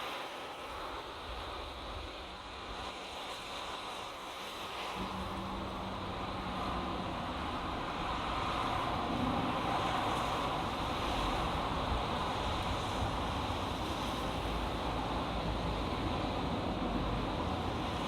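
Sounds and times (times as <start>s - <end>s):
highway traffic rushing: 5.0s - 18.0s.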